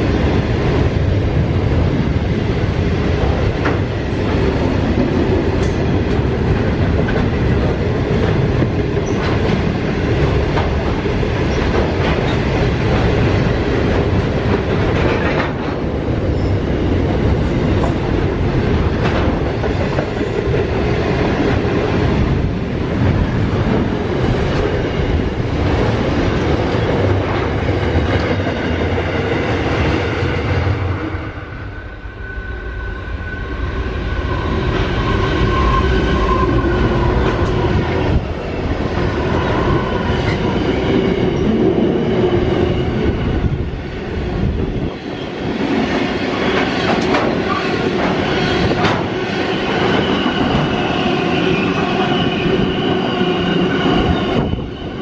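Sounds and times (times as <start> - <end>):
diesel locomotive passing: 0.0 - 55.0.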